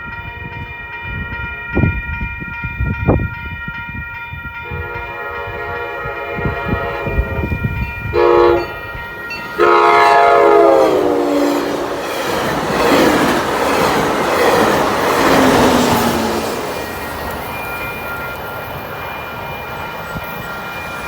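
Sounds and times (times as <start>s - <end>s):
train horn blasts: 4.6s - 12.0s
train rushing by: 4.6s - 21.0s.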